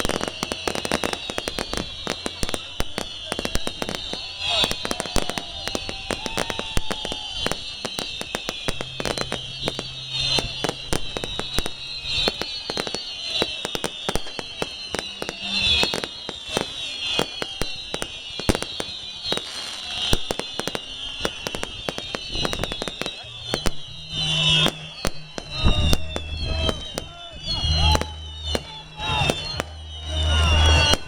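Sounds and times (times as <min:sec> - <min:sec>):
fireworks and firecrackers banging: 0:00.0 - 0:31.0
high shrill sound: 0:00.0 - 0:31.0.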